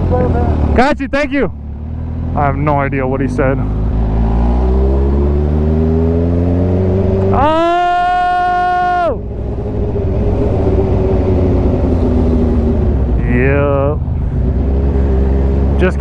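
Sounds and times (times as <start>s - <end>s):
motorcycle engine accelerating: 0.0s - 16.0s
person shouting: 7.3s - 9.2s.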